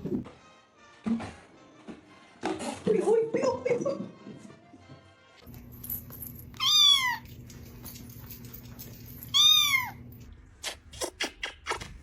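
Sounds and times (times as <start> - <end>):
cat meowing: 6.6 - 7.3, 9.3 - 10.0.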